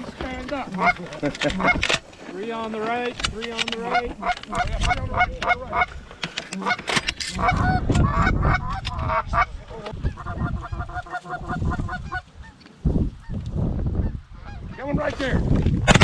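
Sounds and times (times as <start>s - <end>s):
geese honking: 0.0s - 13.4s.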